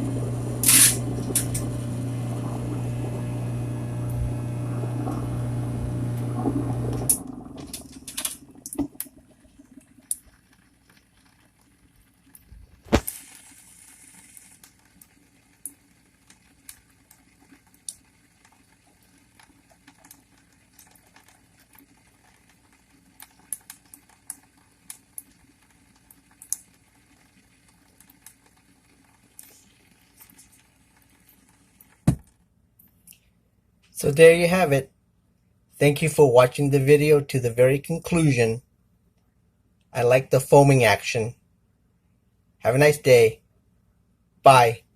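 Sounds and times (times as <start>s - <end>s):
garbage disposal motor humming: 0.0s - 11.9s
foaming cleaner fizzing in drain: 0.0s - 32.1s.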